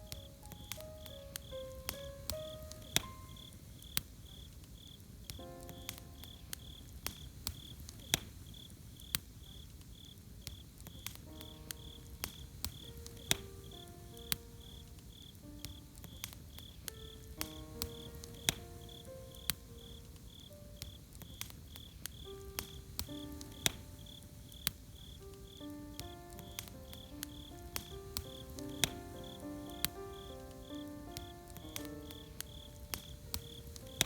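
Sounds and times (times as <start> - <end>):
soft melodic notes: 0.0 - 3.7, 11.3 - 21.0, 22.2 - 34.0
campfire crackling and popping: 0.0 - 34.0
cricket chirping: 0.0 - 34.0.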